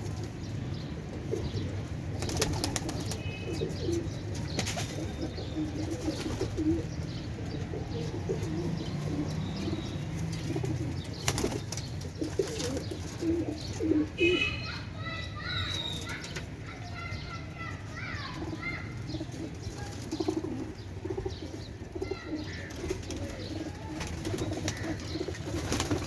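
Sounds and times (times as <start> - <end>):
pigeons cooing: 0.0 - 26.0
wings flapping: 2.2 - 3.2, 10.4 - 12.9, 22.7 - 26.0.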